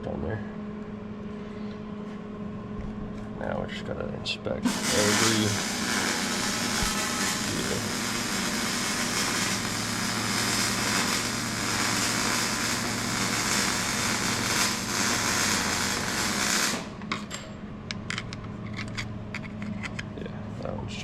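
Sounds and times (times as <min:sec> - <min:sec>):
low steady hum: 0:00.0 - 0:21.0
loud rushing hiss: 0:04.7 - 0:17.0.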